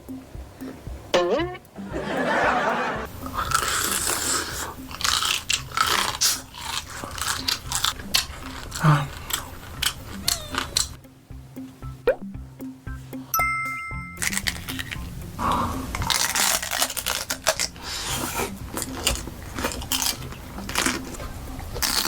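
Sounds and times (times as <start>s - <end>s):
crunchy chewing: 3.1s - 11.0s, 14.2s - 22.0s.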